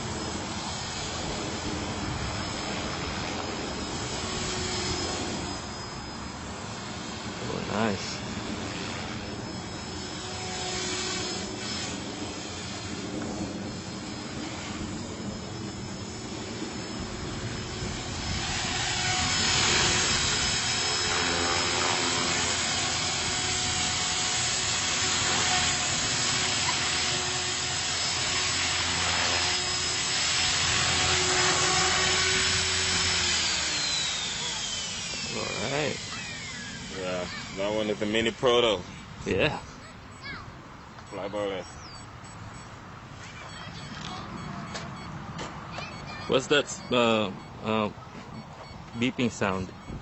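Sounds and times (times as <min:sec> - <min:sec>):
rc helicopter motor whine: 0:00.0 - 0:50.0.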